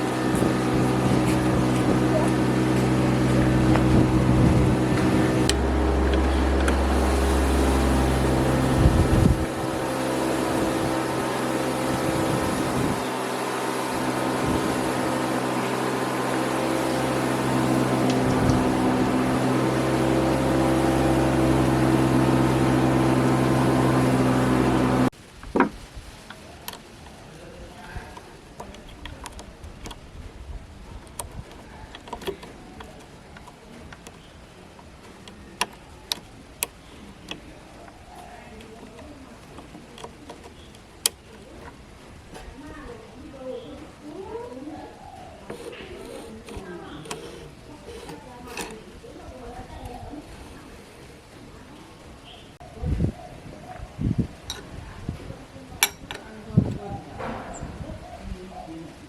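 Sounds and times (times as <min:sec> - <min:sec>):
machine humming: 0:00.0 - 0:25.1, 0:34.5 - 0:52.2.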